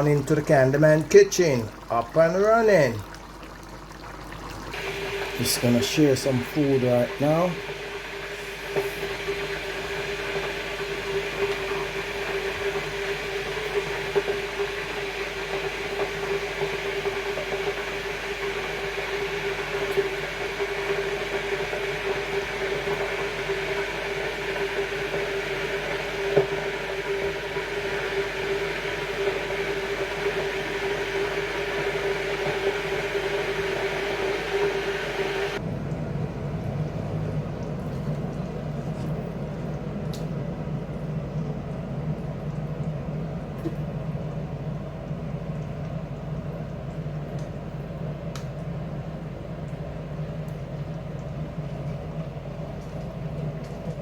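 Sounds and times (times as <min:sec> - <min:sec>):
kitchen appliance motor humming: 0:04.6 - 0:35.6.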